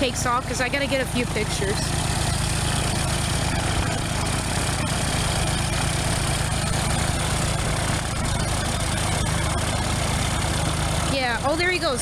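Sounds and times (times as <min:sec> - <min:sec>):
propeller plane engine idling: 0:00.0 - 0:12.0.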